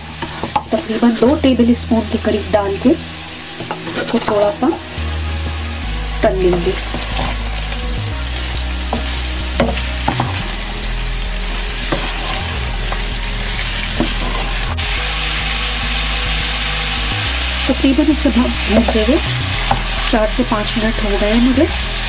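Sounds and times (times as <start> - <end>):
vegetables sizzling in oil: 0.0 - 22.0
wooden spoon scraping pot: 3.5 - 4.8, 11.4 - 14.9.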